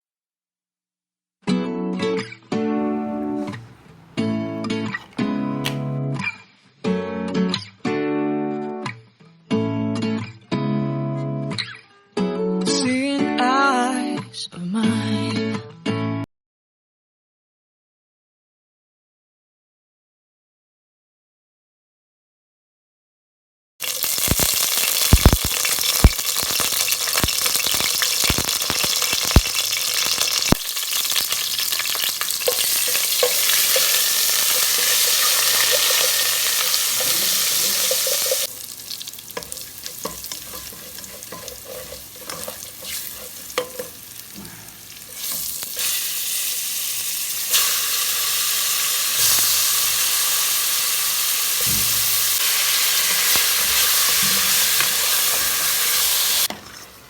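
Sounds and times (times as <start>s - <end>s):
chicken sizzling in a pan: 23.8s - 57.0s
utensil clicking against pan: 30.1s - 44.0s.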